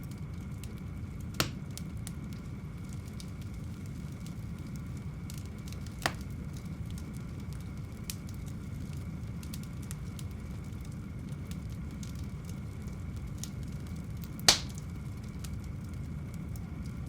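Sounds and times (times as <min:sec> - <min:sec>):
fire crackling in a fireplace: 0:00.0 - 0:17.0
low rumble of flames: 0:00.0 - 0:17.0
loud fire pop: 0:01.4 - 0:01.6, 0:06.0 - 0:06.3, 0:14.5 - 0:14.8.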